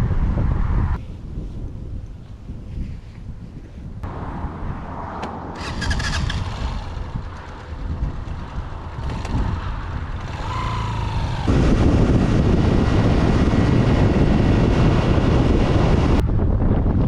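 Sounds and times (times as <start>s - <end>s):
wind buffeting microphone: 0.0s - 17.0s
motorcycle engine revving up: 5.5s - 16.2s.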